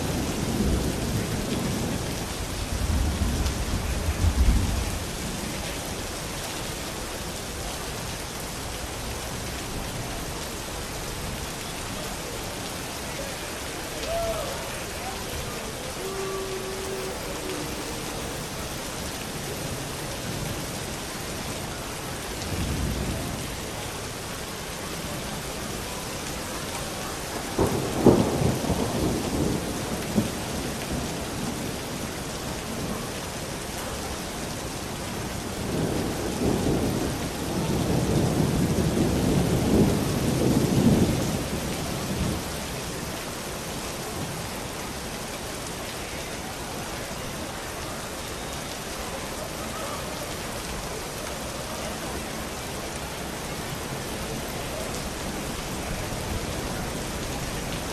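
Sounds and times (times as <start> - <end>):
thunder rumbling: 0.0 - 5.6, 15.0 - 20.7
steady rain: 0.0 - 57.9.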